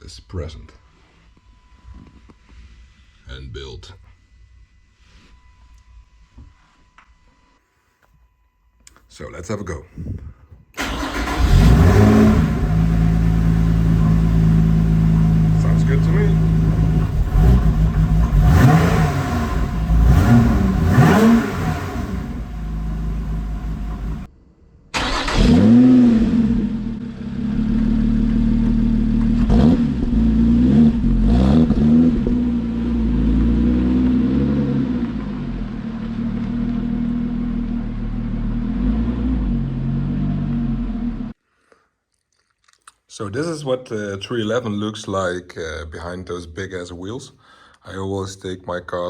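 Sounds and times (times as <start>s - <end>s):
car engine idling and revving: 10.8s - 24.3s, 25.0s - 41.4s.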